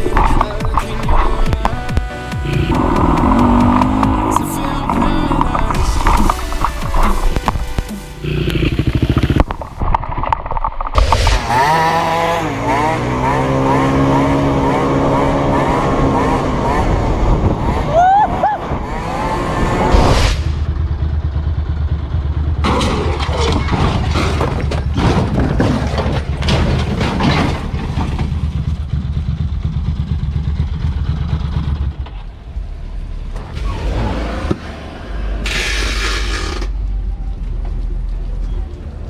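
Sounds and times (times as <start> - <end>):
dirt bike engine rumbling: 0.0 - 33.8
sharp knocks and clatter: 22.6 - 29.2.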